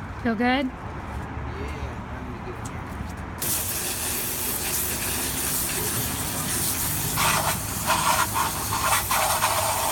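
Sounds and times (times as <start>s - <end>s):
water spray hissing: 3.4s - 9.9s.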